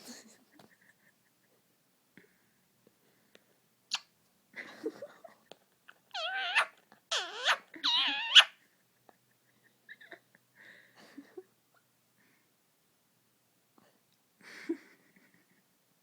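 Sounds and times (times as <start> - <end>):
parakeet high-pitched calls: 6.2 - 8.5.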